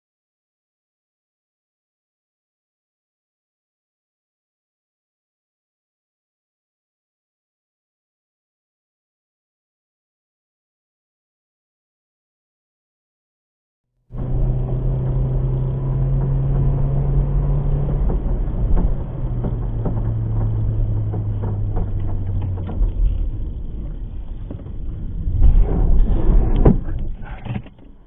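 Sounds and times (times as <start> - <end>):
knocks and rattles: 14.2 - 28.0
loud clattering: 14.2 - 28.0
vehicle engine humming: 14.2 - 28.0.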